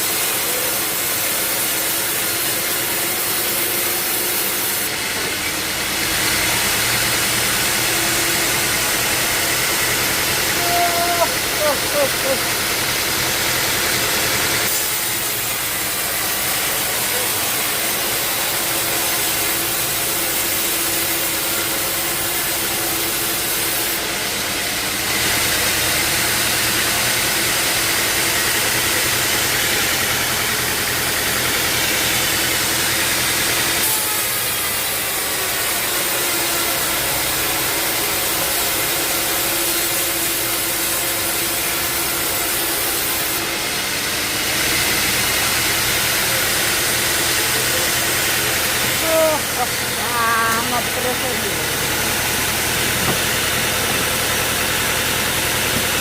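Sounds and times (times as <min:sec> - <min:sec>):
saw cutting wood: 0:00.0 - 0:56.0.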